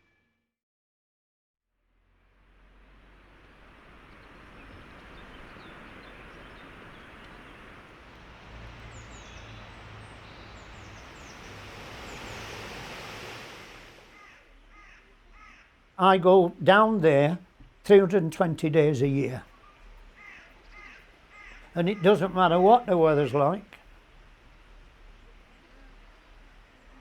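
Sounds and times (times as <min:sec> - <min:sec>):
steady rushing noise: 0:03.1 - 0:14.2
small birds chirping: 0:04.0 - 0:13.1, 0:14.1 - 0:23.9.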